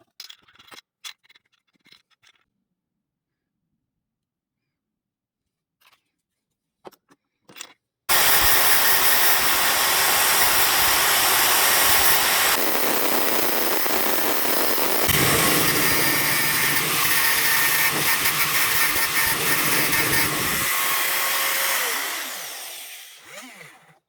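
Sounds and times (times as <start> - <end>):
electric motor whirring: 8.1 - 23.9.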